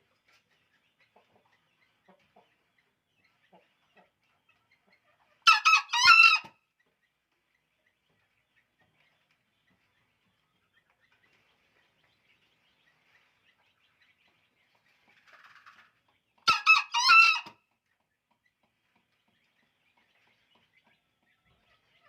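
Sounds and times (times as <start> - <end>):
junglefowl crowing: 5.4 - 6.5, 16.5 - 17.5.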